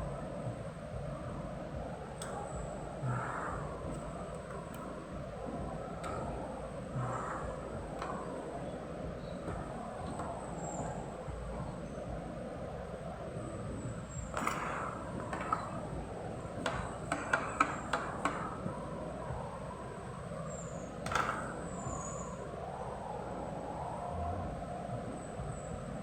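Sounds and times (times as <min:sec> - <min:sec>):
steady background noise: 0:00.0 - 0:26.0
sharp clicks and knocks: 0:02.2 - 0:11.3, 0:14.1 - 0:18.8, 0:21.0 - 0:22.0.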